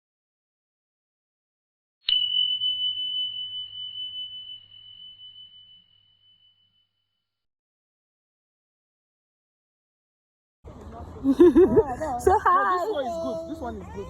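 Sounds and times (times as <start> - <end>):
bell-like ding: 2.1 - 7.2.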